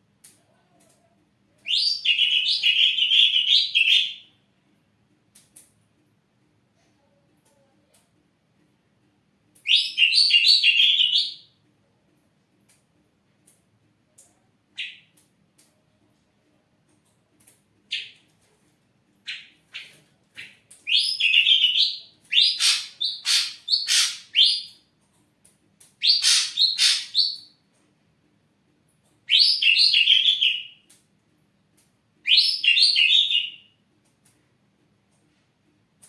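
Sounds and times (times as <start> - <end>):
bird singing rapid notes: 20.9 - 24.7, 26.0 - 27.5.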